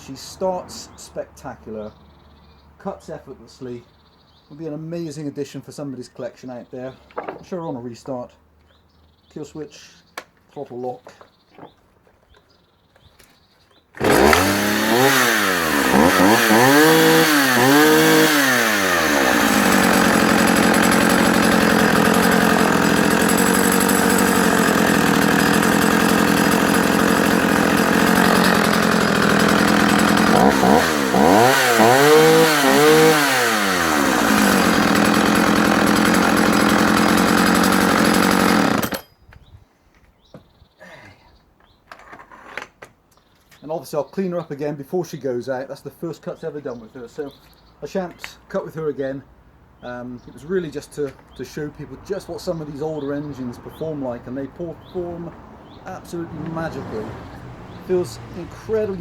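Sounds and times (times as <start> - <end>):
chainsaw revving and running: 14.0 - 39.0, 55.1 - 59.0.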